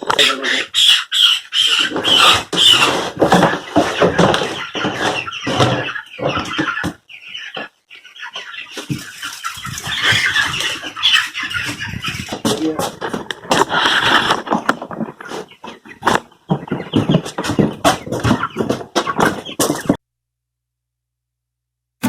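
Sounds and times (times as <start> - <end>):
chicks peeping and chirping: 0.0 - 20.0.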